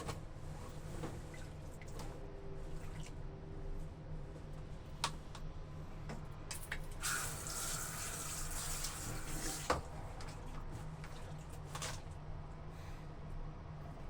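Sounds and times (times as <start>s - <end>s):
water running from a tap: 7.0s - 9.8s.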